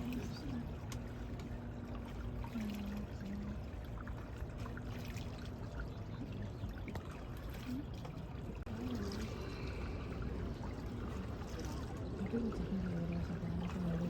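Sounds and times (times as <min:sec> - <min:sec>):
steady low rumble: 0:00.0 - 0:14.0
water trickling and splashing: 0:00.0 - 0:14.0.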